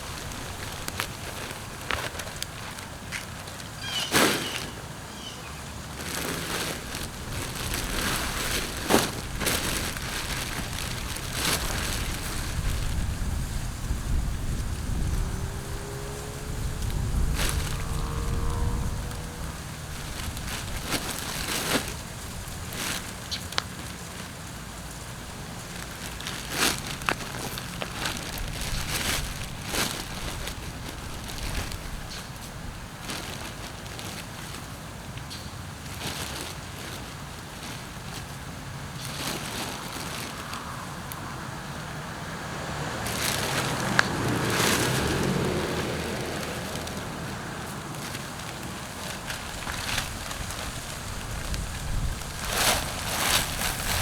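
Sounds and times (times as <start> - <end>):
mulch rustling and crackling: 0.0 - 54.0
steady low rumble: 6.0 - 22.7.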